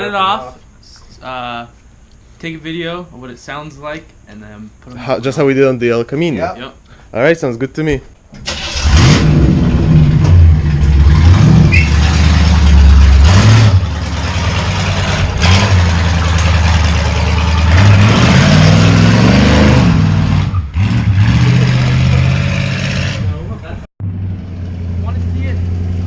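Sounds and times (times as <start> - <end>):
vehicle engine revving: 8.5 - 26.0.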